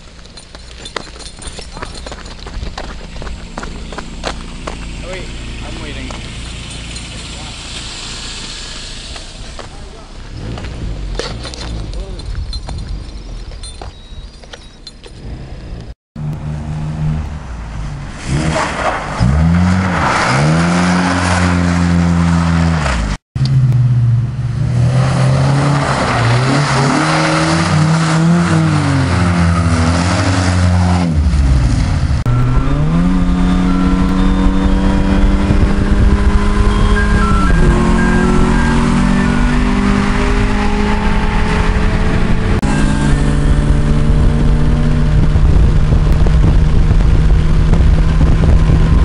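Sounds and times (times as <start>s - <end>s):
car engines revving: 0.0s - 14.1s, 15.0s - 49.0s
loud hiss of noise: 7.4s - 9.6s.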